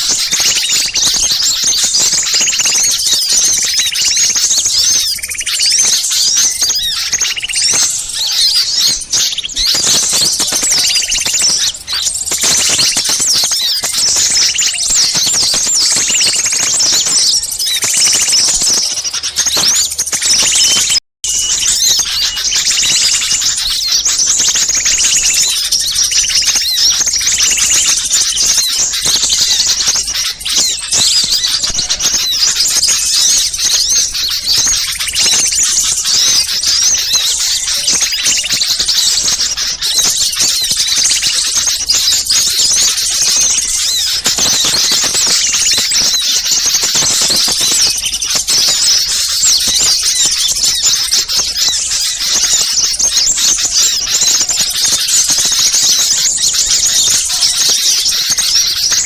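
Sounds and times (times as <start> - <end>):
small birds chirping in chorus: 0.0 - 59.0.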